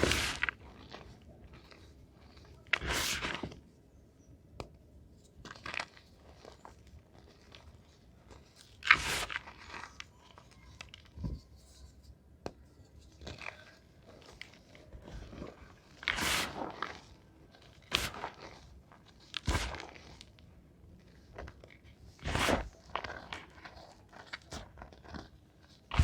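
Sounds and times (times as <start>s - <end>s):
chalk being crushed: 0.0s - 3.5s, 8.7s - 10.1s, 13.2s - 20.4s, 22.2s - 26.0s.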